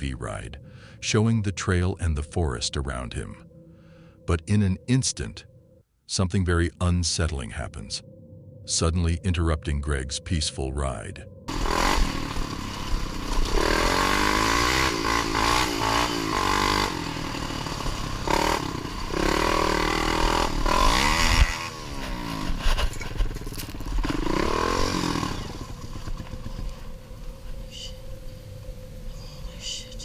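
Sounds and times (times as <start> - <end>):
atv engine revving: 11.5 - 26.9.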